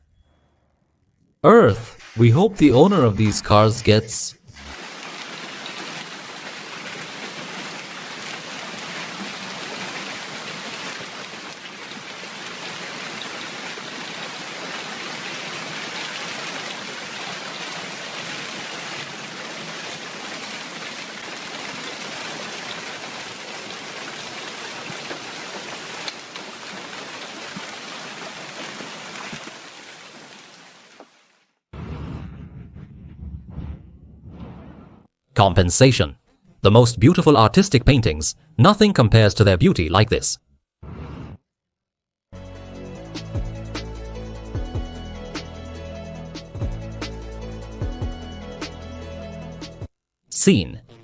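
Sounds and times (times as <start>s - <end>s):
heavy rain pouring: 2.0s - 31.3s.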